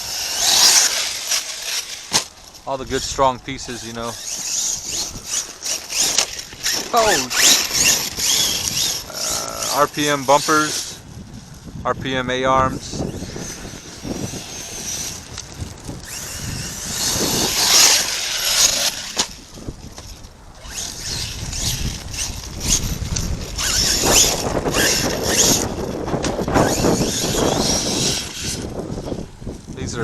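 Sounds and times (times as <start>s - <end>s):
tyres churning over dirt: 0.0s - 11.1s
electric motor whining: 0.0s - 30.0s.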